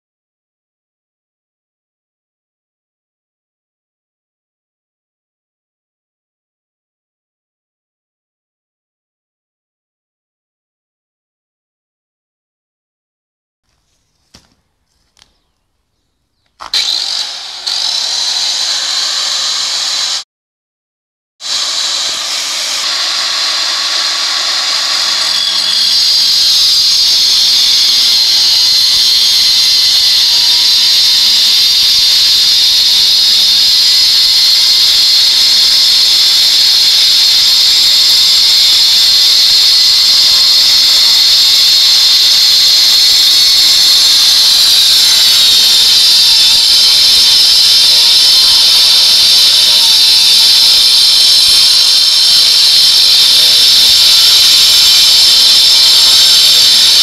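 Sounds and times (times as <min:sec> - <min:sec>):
angle grinder cutting stone: 0:16.6 - 0:20.2, 0:21.4 - 0:57.0.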